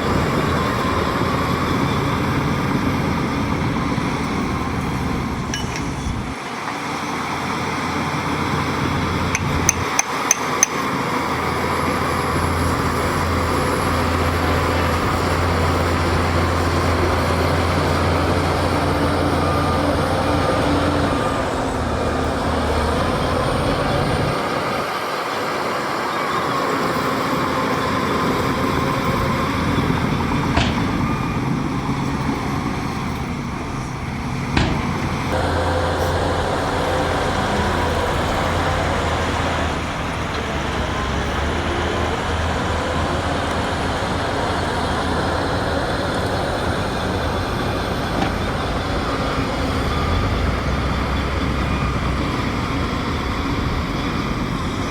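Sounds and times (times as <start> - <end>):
diesel engine running under load: 0.0 - 54.9
sharp knocks: 9.3 - 10.9, 30.6 - 31.1, 34.6 - 35.3.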